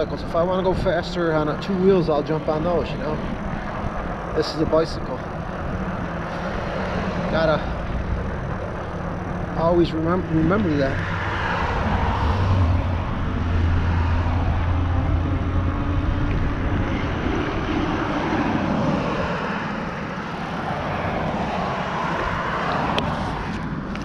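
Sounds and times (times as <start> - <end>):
cars passing: 0.0 - 24.0
wind on microphone: 0.0 - 24.0.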